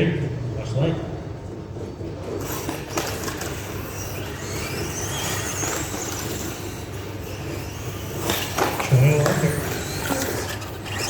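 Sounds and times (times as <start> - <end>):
toy truck wheel noise: 2.2 - 11.0
electric motor whine: 2.4 - 11.0.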